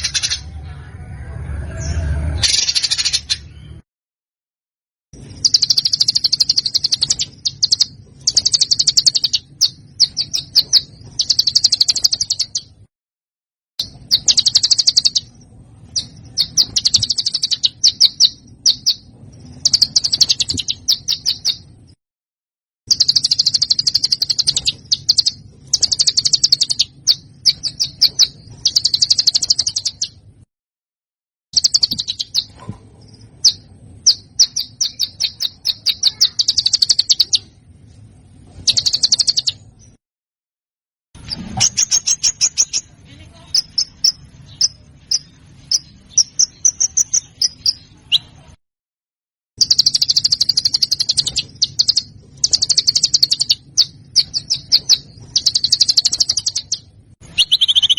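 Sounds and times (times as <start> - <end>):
songbird singing harsh notes: 5.3 - 12.8, 13.8 - 21.7, 22.9 - 30.2, 31.6 - 32.5, 33.4 - 37.6, 41.2 - 48.4, 49.6 - 57.9
faint low hum: 13.8 - 22.0, 22.9 - 30.5, 49.6 - 57.9.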